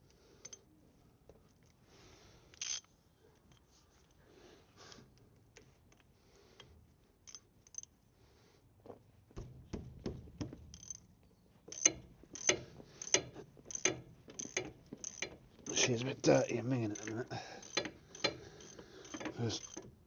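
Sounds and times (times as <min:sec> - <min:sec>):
metallic clicks and knocks: 0:09.4 - 0:11.0, 0:11.7 - 0:20.0.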